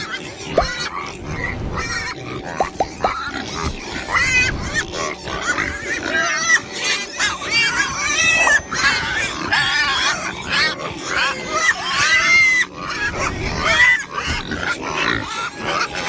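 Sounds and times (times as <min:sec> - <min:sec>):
pigs grunting and squealing: 0:00.0 - 0:16.0.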